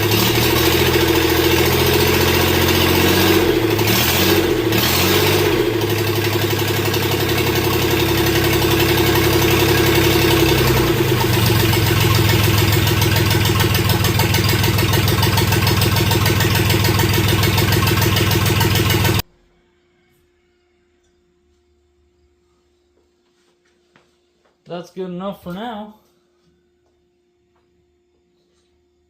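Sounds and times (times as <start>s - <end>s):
diesel engine running: 0.0s - 19.2s.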